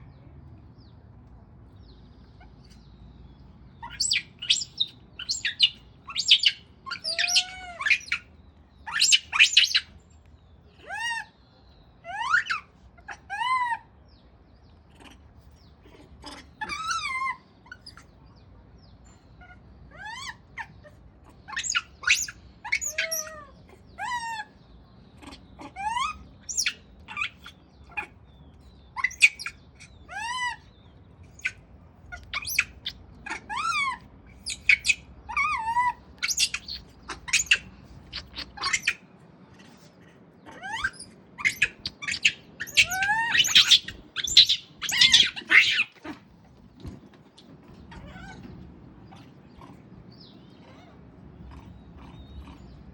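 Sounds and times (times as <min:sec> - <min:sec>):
monkey squeaking cries: 0:03.8 - 0:08.3, 0:08.9 - 0:09.9, 0:10.8 - 0:11.4, 0:12.0 - 0:13.9, 0:15.9 - 0:18.1, 0:19.4 - 0:20.8, 0:21.5 - 0:24.6, 0:25.2 - 0:28.2, 0:29.0 - 0:30.7, 0:31.3 - 0:46.2, 0:47.9 - 0:48.6.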